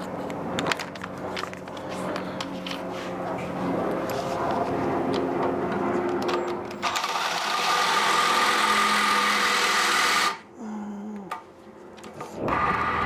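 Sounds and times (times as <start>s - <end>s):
electric drill drilling: 6.8s - 10.4s, 12.4s - 13.0s.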